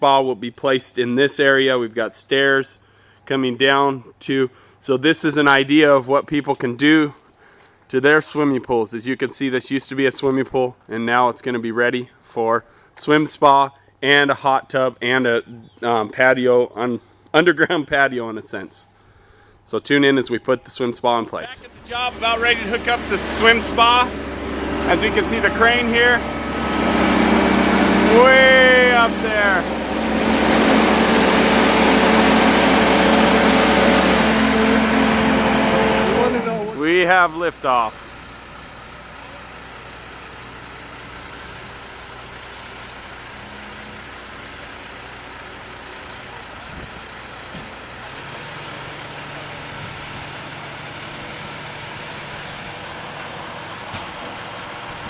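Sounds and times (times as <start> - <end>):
outdoor noise: 14.8 - 55.0
crane engine running under load: 21.5 - 55.0.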